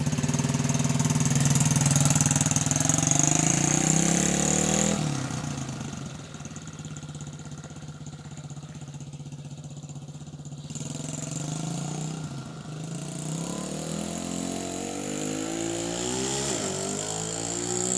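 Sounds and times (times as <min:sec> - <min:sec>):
dirt bike engine revving: 0:00.0 - 0:06.5, 0:10.6 - 0:17.9.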